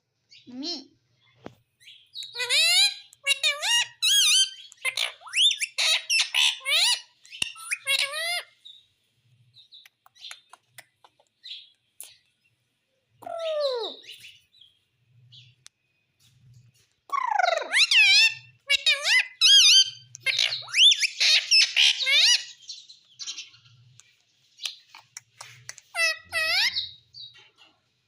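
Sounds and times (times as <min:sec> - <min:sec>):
parrot clicks and chirps: 0:02.1 - 0:08.2, 0:09.6 - 0:12.3, 0:17.1 - 0:22.4, 0:23.9 - 0:27.3
parrot calling: 0:02.2 - 0:08.6, 0:13.2 - 0:14.2, 0:17.1 - 0:22.6, 0:24.7 - 0:27.0.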